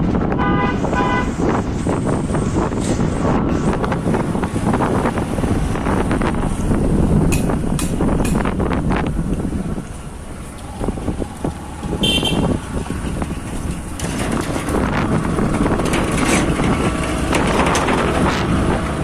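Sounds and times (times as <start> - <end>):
motorcycle engine rumble: 0.0 - 19.0
wind buffeting microphone: 0.0 - 19.0
motorcycle horn beep: 12.0 - 12.6.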